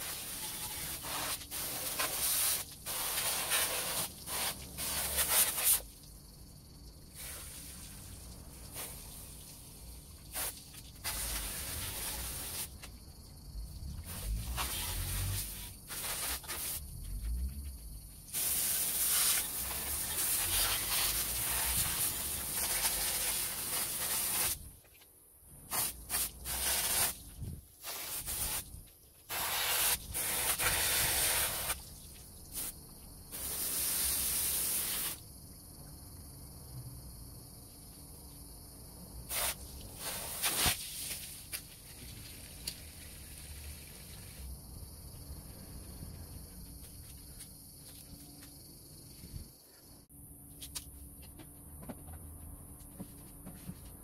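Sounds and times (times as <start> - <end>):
aerosol spray can hissing: 0.0 - 5.9, 10.3 - 12.8, 25.7 - 27.2, 27.8 - 28.7, 29.3 - 31.8, 33.4 - 35.2, 39.3 - 41.1.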